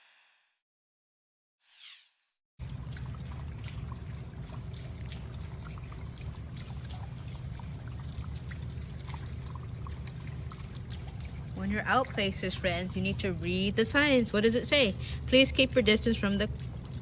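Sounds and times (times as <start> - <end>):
water trickling and splashing: 2.6 - 17.0.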